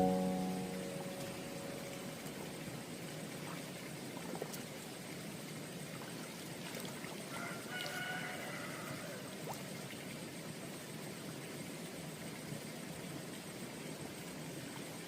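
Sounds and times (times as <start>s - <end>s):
rooster crowing: 7.3s - 9.3s.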